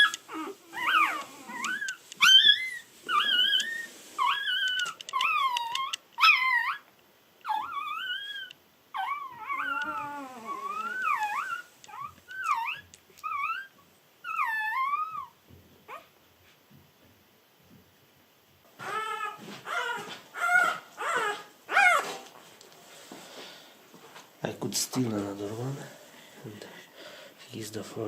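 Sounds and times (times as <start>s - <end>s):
puppies squealing and whining: 0.0s - 16.1s, 18.7s - 22.2s.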